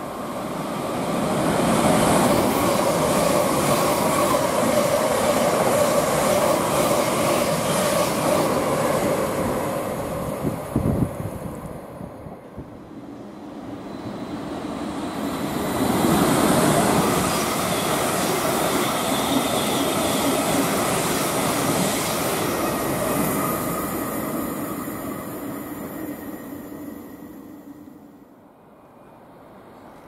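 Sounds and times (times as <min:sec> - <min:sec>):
train wheels rushing on rails: 0:00.0 - 0:11.7, 0:13.1 - 0:27.9.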